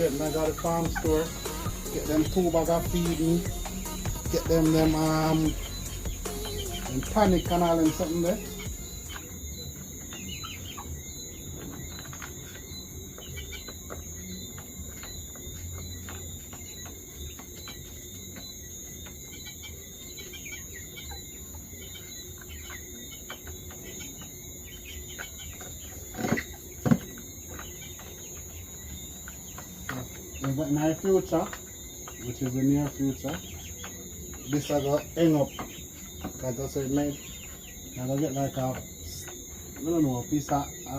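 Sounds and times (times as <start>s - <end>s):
chickens clucking: 0.0s - 40.9s
crickets droning: 0.0s - 40.9s.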